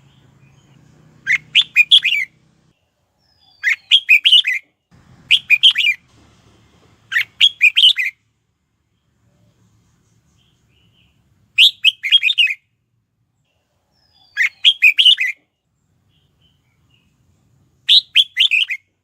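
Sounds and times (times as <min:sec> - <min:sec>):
bird chirping song: 0:00.0 - 0:06.1, 0:07.0 - 0:19.0.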